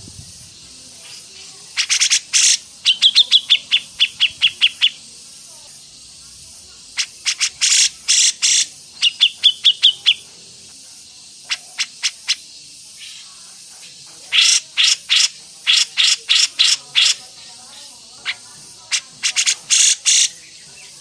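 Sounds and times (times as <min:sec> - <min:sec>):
songbird harsh calls: 0:00.0 - 0:05.1, 0:06.8 - 0:10.3, 0:11.3 - 0:13.4, 0:14.0 - 0:21.0.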